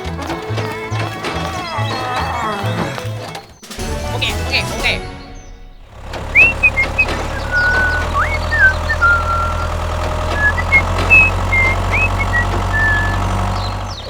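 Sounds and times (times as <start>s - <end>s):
tractor engine humming: 0.0s - 14.0s
high whistling chirps: 6.3s - 14.0s.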